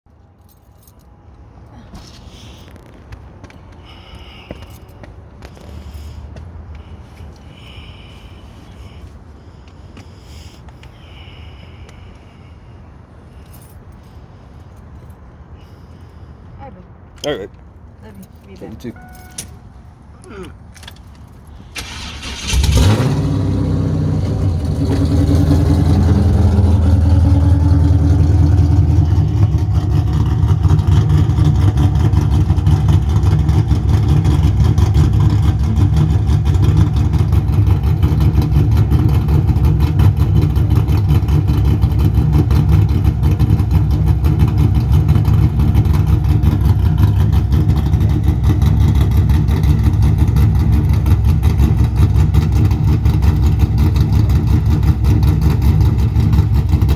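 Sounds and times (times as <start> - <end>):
car engine loping idle: 21.3 - 56.9.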